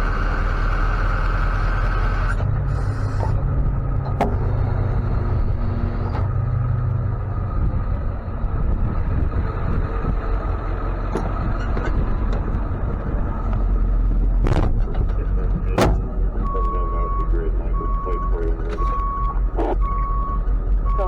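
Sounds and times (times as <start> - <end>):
tow truck engine and road rumble: 0.0 - 21.0
sharp knocks: 14.4 - 15.1, 15.7 - 16.2.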